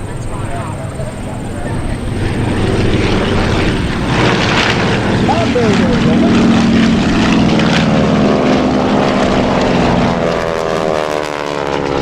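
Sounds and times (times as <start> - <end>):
propeller plane engines passing: 0.0 - 12.0.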